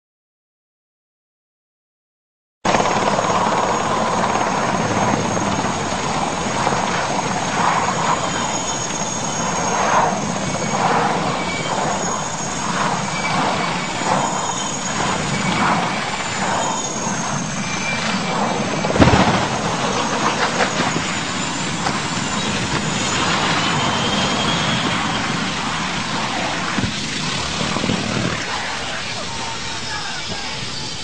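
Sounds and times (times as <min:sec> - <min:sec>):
aircraft engine running: 0:02.7 - 0:31.0
sharp thump: 0:19.0 - 0:19.6.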